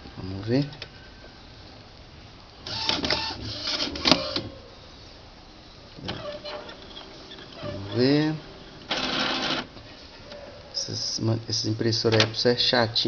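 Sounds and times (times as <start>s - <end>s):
printer carriage motor whirring: 2.6s - 4.6s, 6.0s - 10.4s.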